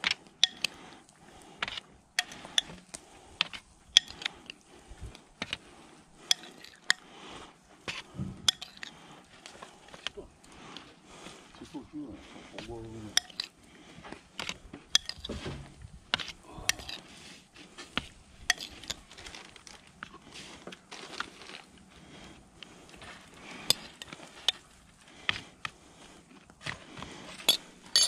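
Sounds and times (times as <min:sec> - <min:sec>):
utensils and dishes clinking: 0:13.1 - 0:13.5.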